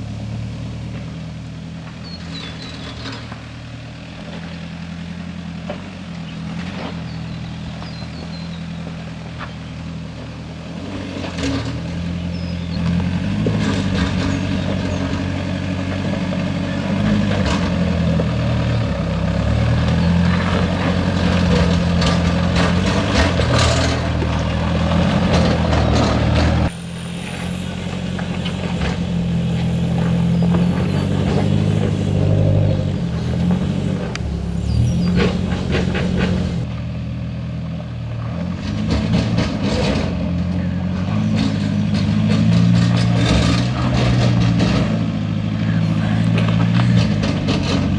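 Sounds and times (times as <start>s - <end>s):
car engine pulling under load: 0.0s - 47.9s
knocks and rattles: 27.6s - 37.0s.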